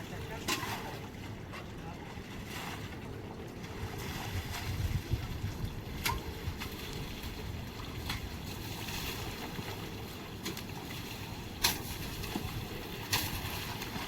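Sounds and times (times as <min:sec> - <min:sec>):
wind on microphone: 0:03.8 - 0:09.8
sharp knocks or splashes: 0:11.6 - 0:14.0.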